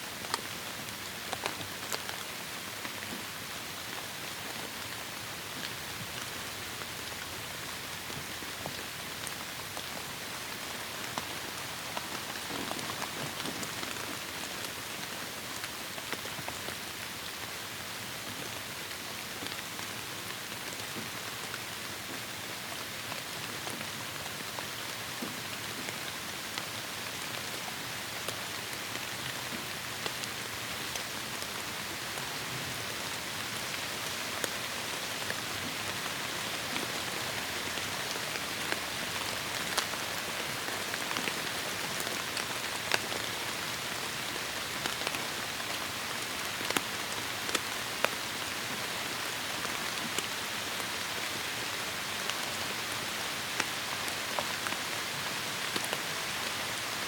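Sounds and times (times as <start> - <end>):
heavy rain on foliage: 0.0 - 57.0.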